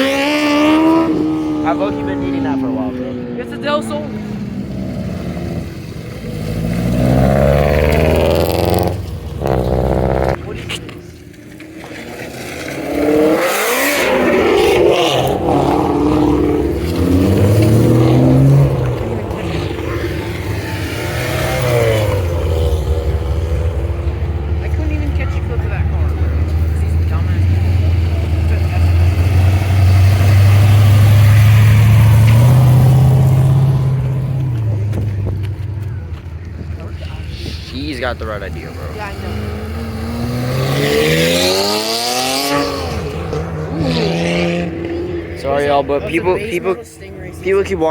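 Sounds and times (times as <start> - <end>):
car engine revving and passing: 0.0 - 47.9.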